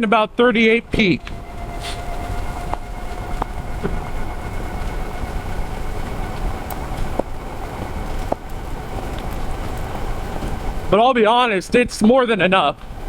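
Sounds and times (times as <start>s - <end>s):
wind rumble on microphone: 0.2s - 13.0s
electric motor whine: 0.9s - 10.9s.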